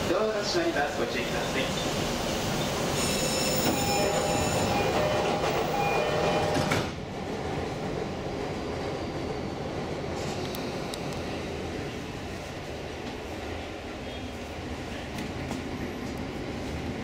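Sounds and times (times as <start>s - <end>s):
train running on track: 0.0s - 17.0s.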